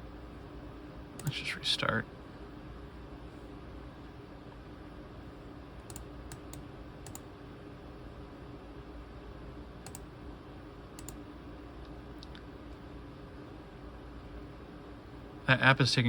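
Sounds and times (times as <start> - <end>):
laptop keys clicking: 5.8 - 7.3.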